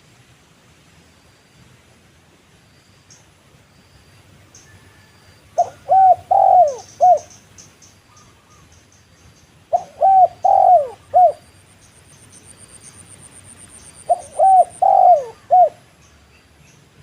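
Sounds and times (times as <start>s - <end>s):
dove cooing: 5.6s - 7.4s, 9.7s - 11.5s, 14.0s - 15.9s
small birds chirping: 5.6s - 17.0s.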